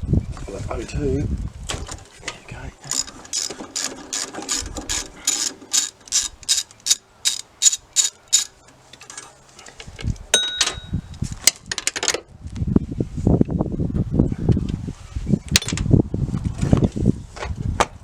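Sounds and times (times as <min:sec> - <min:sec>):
ratchet wrench clicking: 0:02.9 - 0:08.6
clatter of metal: 0:02.9 - 0:09.4
ringing metallic clink: 0:10.4 - 0:11.0.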